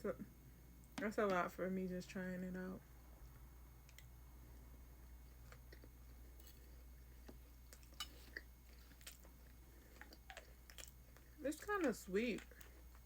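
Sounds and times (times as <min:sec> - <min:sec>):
faint chewing: 0:03.3 - 0:13.0.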